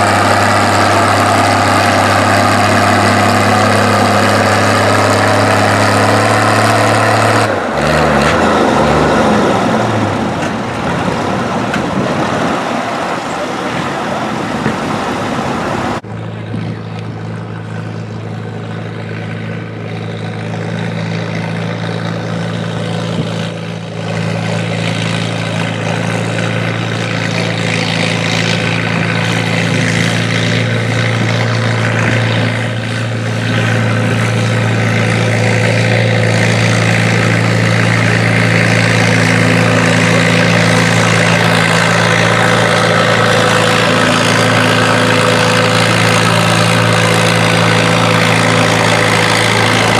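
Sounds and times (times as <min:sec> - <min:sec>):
tractor engine running: 0:00.0 - 0:16.0, 0:24.2 - 0:49.9.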